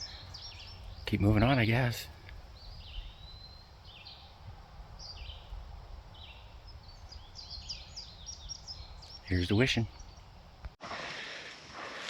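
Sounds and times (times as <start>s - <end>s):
songbirds chirping: 0.0s - 10.8s.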